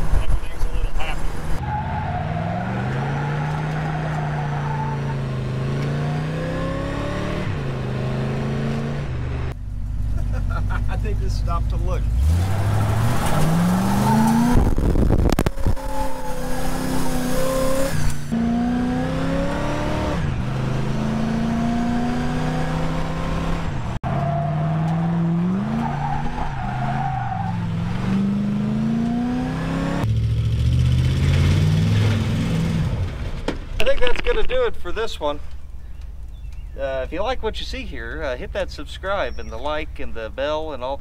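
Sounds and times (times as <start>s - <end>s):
car engine accelerating: 1.2s - 33.7s.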